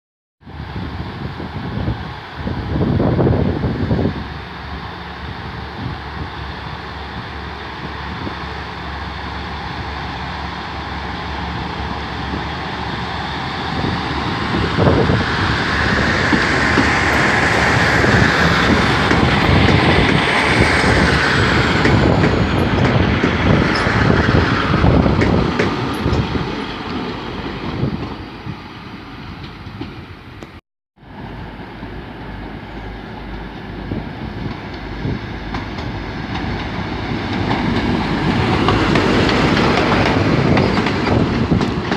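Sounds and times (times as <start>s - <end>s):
train approaching: 0.4s - 41.9s
train wheels clicking over rails: 11.5s - 28.3s, 33.2s - 41.9s.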